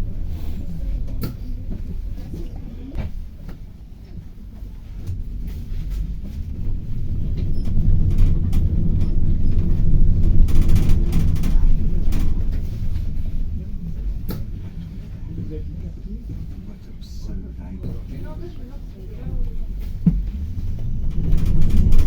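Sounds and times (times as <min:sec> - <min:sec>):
bus engine rumble: 0:00.0 - 0:22.0
cabin rattles and clicks: 0:06.4 - 0:15.2, 0:19.8 - 0:22.0.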